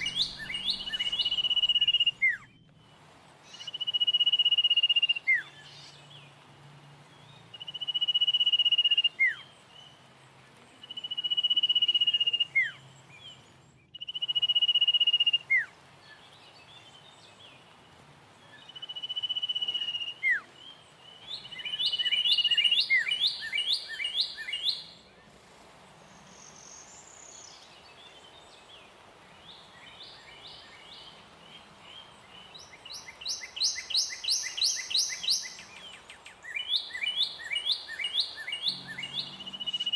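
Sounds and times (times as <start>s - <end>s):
bird stuttering trills: 0.0s - 2.4s.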